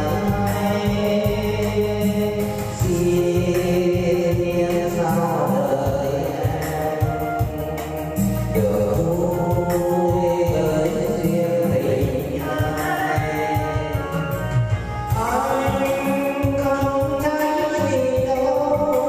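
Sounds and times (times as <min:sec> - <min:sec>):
instrumental accompaniment: 0:00.0 - 0:19.0
person singing: 0:00.0 - 0:19.0.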